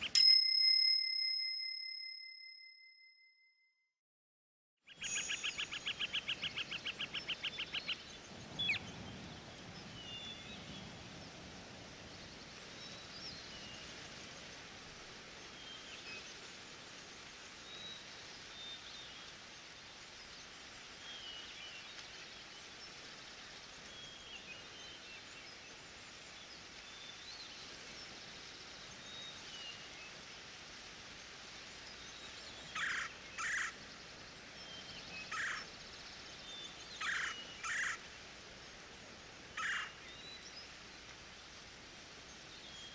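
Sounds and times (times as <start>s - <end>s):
faint high bird chirps: 4.9s - 9.0s, 32.5s - 33.8s, 37.0s - 38.0s
steady forest hiss: 4.9s - 42.9s
bird calling in short bursts: 5.0s - 7.4s.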